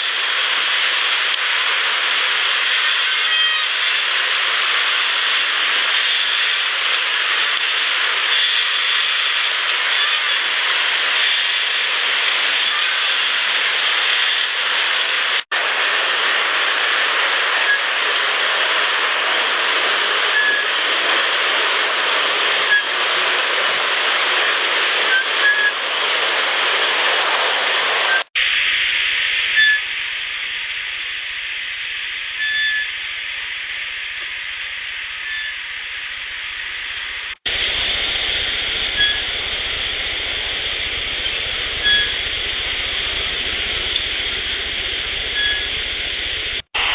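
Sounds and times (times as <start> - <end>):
field recorder hiss: 0.0 - 46.9
faint brief whistle tones: 20.3 - 20.8, 25.1 - 25.8, 29.5 - 29.9, 32.4 - 33.0, 35.2 - 35.6, 38.9 - 39.3, 41.8 - 42.2, 45.3 - 45.8.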